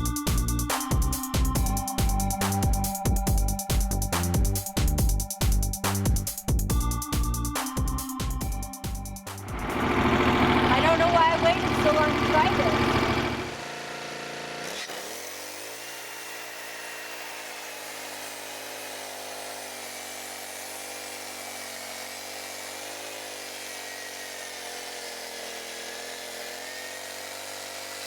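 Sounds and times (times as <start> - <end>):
high blade whine: 0.0 - 13.7
sawmill engine running: 0.0 - 28.0.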